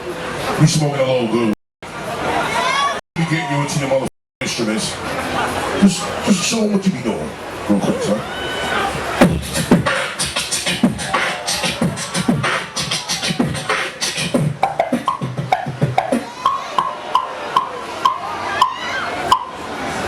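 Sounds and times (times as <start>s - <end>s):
man beatboxing: 9.2s - 17.7s
pitched vocal tones: 9.2s - 19.6s.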